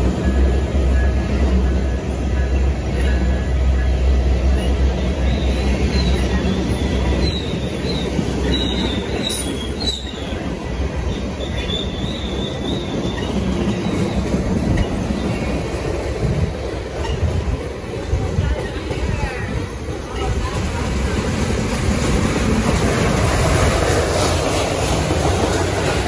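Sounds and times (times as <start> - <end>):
train rumbling past: 0.0 - 26.0
train wheels squealing: 0.2 - 16.0.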